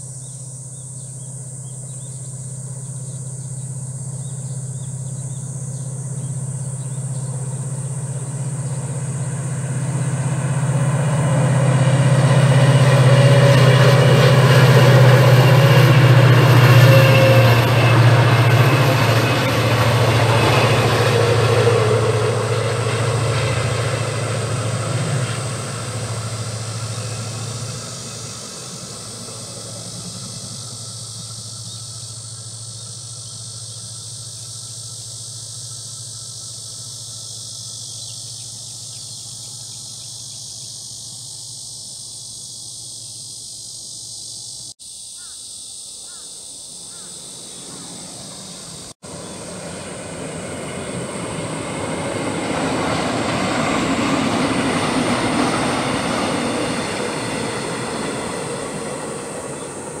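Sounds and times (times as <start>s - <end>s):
steady low hum: 0.0s - 41.4s
high insect drone: 0.0s - 60.0s
train wheels rumbling on rails: 0.8s - 43.4s, 47.0s - 60.0s.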